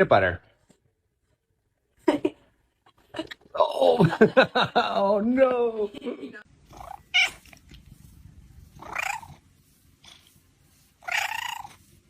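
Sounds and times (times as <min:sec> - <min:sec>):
cat purring: 0:06.6 - 0:12.0
cat meowing: 0:06.8 - 0:07.6, 0:08.8 - 0:09.4, 0:11.0 - 0:11.8.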